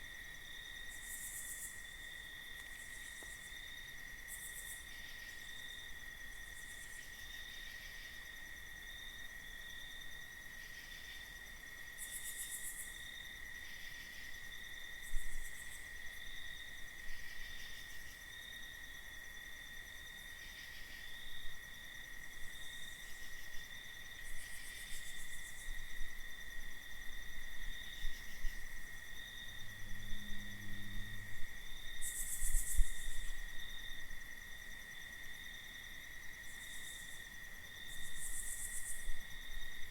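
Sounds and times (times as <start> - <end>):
crickets chirping: 0.0 - 39.9
faint low hum: 28.0 - 33.4.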